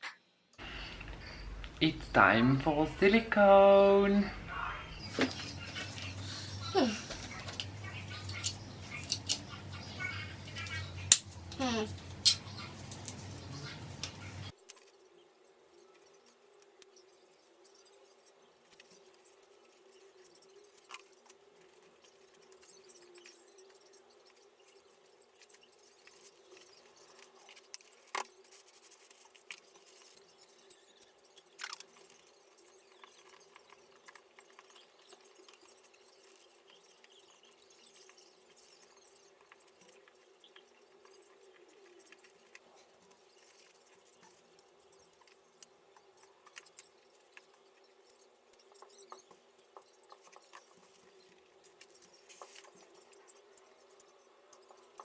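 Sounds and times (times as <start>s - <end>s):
faint hum: 0.6s - 14.5s
scratching and rustling handling: 5.0s - 55.0s.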